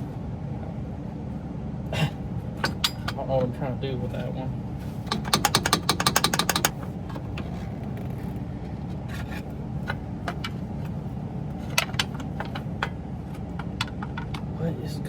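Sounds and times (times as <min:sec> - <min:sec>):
steady low hum: 0:00.0 - 0:15.0
socket ratchet clicking: 0:05.1 - 0:06.8.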